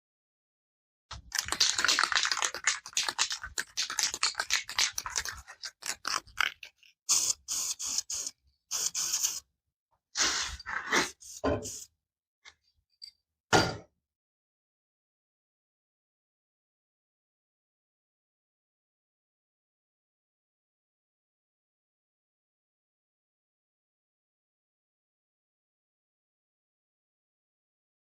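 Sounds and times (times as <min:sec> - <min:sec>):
rough scraping on hard surface: 0:10.2 - 0:11.8.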